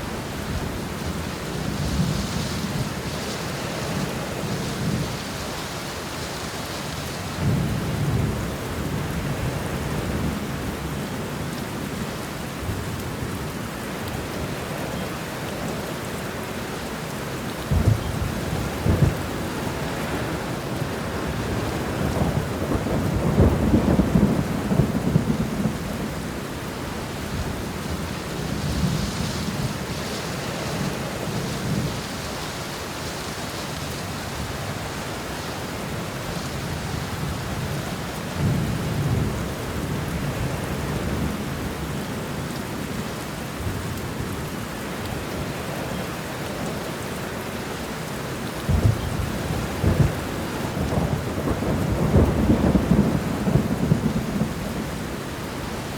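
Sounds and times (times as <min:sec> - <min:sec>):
heavy rain: 0:00.0 - 0:55.9
thunder rumbling: 0:17.7 - 0:32.5, 0:48.7 - 0:55.9.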